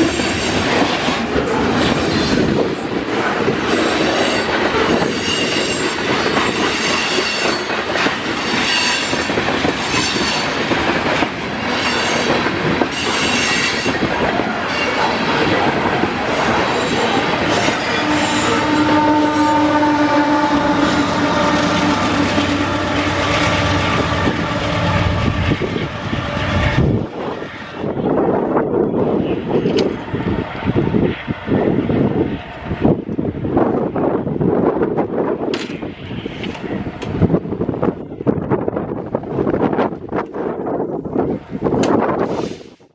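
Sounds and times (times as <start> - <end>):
train wheels clattering over rails: 0.0 - 18.4
metallic flange squeal: 16.3 - 26.9.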